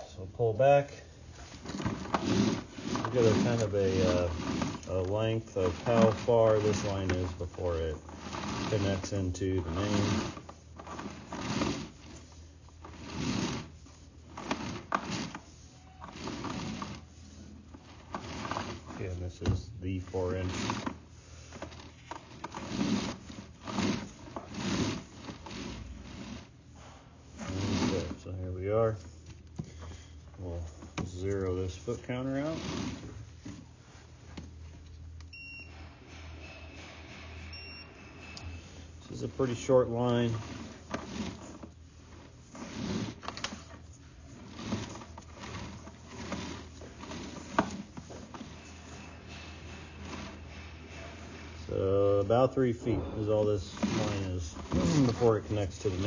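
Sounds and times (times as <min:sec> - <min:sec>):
cable scraping in drain pipe: 0:00.6 - 0:34.5, 0:35.7 - 0:56.0.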